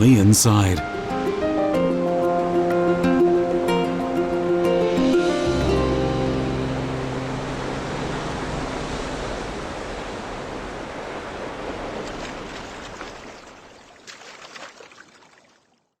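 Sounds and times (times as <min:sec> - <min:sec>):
waterfall rushing: 0:00.0 - 0:12.0
water splashes: 0:07.5 - 0:15.8.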